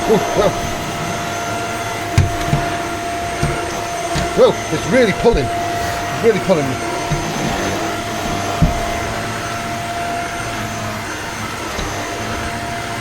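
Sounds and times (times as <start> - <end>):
vacuum cleaner running on carpet: 0.0 - 13.0.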